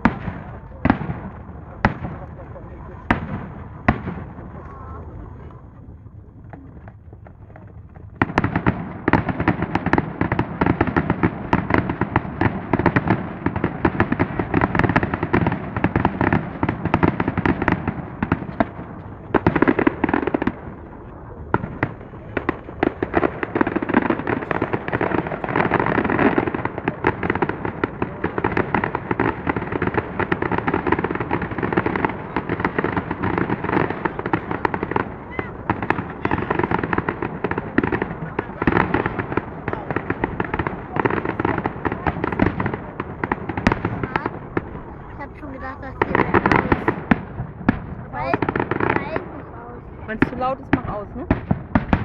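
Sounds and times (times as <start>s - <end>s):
fireworks bangs and crackling: 0.0s - 52.0s.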